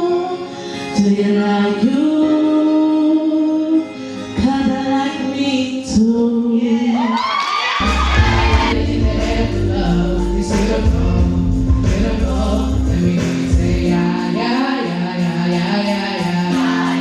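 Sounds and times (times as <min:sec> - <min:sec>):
choir singing: 0:06.6 - 0:10.0, 0:16.2 - 0:17.0
band with heavy bass: 0:07.8 - 0:14.5.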